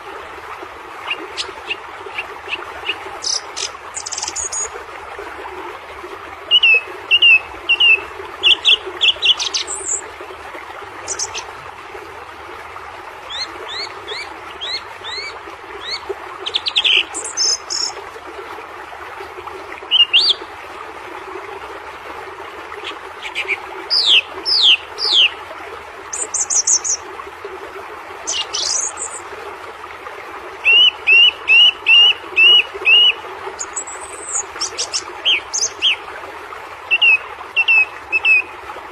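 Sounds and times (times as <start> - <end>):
birds chirping and calling: 1.0 - 4.7, 6.5 - 10.0, 11.1 - 11.5, 13.3 - 17.9, 22.8 - 25.3, 28.3 - 29.2, 30.7 - 36.0.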